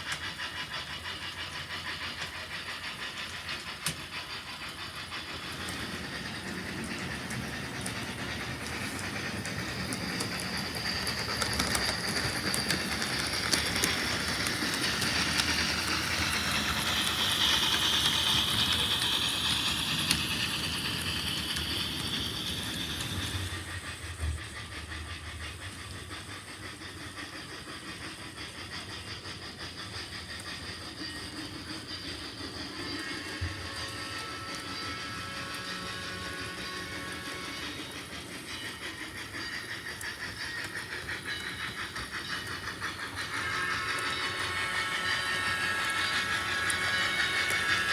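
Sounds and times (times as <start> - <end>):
wheels clicking: 0.0 - 24.0
model train rumbling on track: 0.0 - 47.9.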